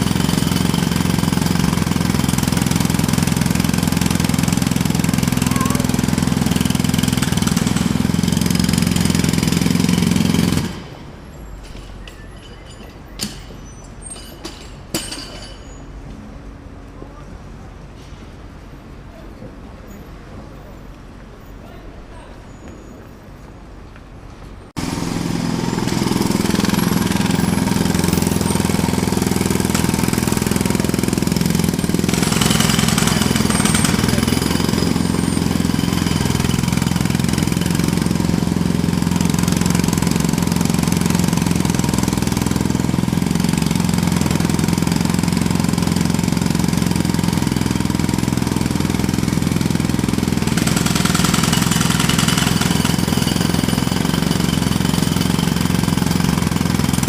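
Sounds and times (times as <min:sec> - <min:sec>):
jackhammer rattling: 0:00.0 - 0:15.8, 0:24.8 - 0:57.0.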